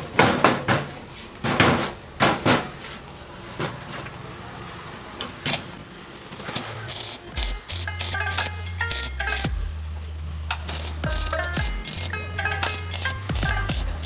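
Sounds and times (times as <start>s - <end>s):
hammer hits on metal parts: 0.0s - 2.8s, 6.5s - 9.7s, 10.5s - 14.0s.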